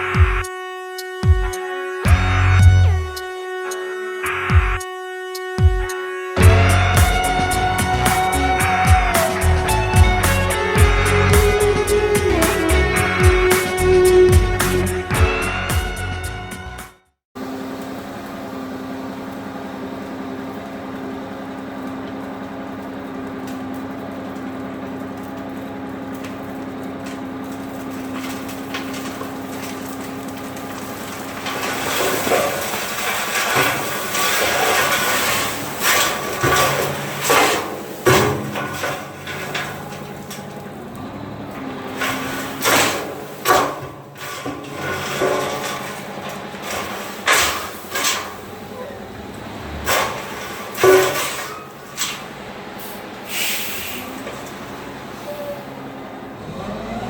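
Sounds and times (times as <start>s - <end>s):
engine running: 0.0s - 16.7s, 17.4s - 57.0s
irregular knocks and clanks: 26.2s - 52.4s.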